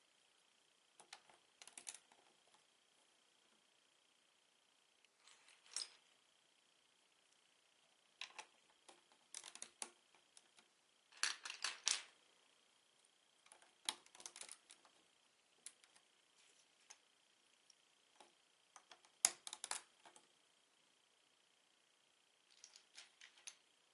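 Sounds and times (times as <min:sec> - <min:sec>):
plastic bricks clicking and clattering: 0:11.2 - 0:12.1, 0:22.5 - 0:23.6.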